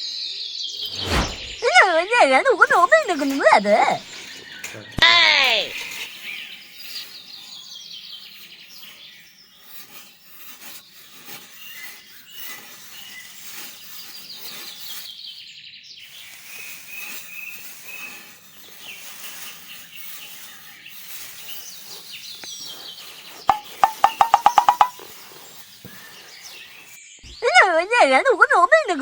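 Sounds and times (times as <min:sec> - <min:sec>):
birds chirping and trilling: 0:00.1 - 0:27.8
soft clicks and scraping: 0:02.6 - 0:05.0.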